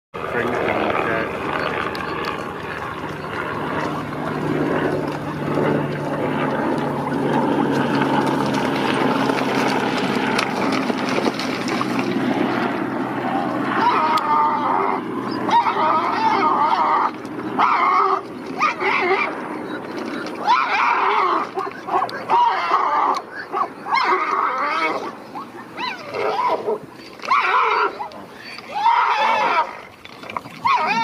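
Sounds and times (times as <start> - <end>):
low mechanical hum: 0.2 - 31.0
animal calls: 13.6 - 31.0.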